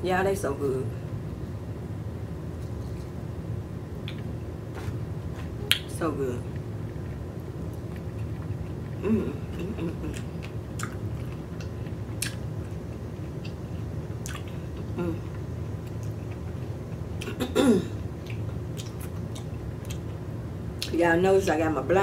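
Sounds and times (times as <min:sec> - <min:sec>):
falling hum: 0:00.0 - 0:21.3
person chewing: 0:06.5 - 0:17.4, 0:18.1 - 0:20.2.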